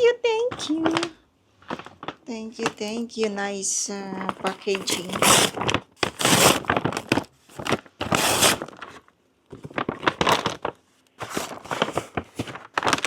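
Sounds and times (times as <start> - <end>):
envelope tearing and crinkling: 0.6 - 2.3, 4.2 - 13.0.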